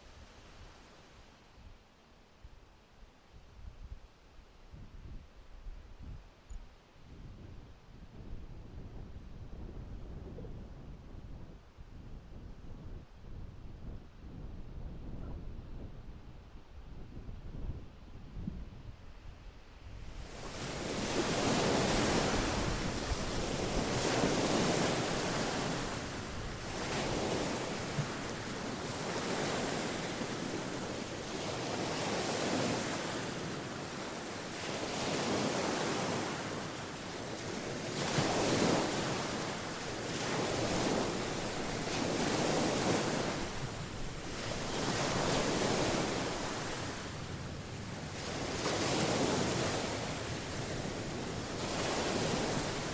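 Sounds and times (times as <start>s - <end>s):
wind on microphone: 3.3s - 52.9s
ocean waves breaking on shore: 20.0s - 52.9s.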